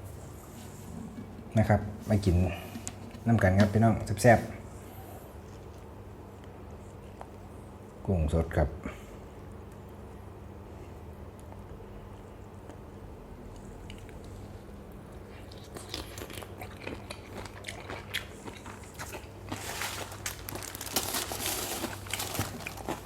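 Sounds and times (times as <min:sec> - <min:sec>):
person chewing crunchy food: 0:13.5 - 0:23.0.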